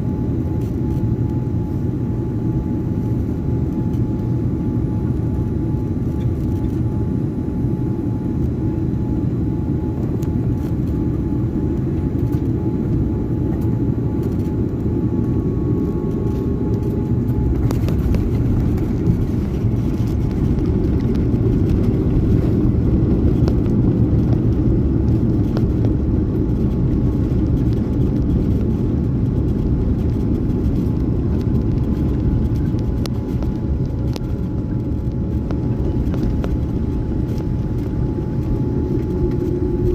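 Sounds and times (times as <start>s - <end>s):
jet airliner engines rumbling: 0.0s - 39.9s
faint rattles and clicks: 15.8s - 22.6s, 29.4s - 39.9s.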